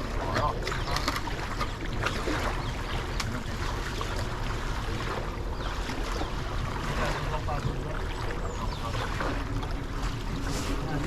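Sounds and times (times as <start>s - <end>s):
rushing water: 0.0s - 11.0s
wind: 0.0s - 11.0s.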